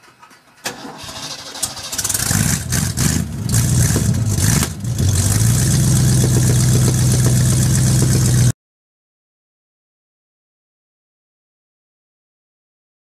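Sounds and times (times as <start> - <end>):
car engine starting and idling: 0.0 - 8.5.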